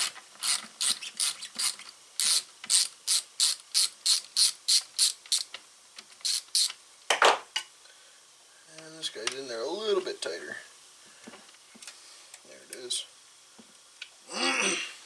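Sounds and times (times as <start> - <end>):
ratchet wrench clicking: 0.0 - 5.5, 6.2 - 6.8.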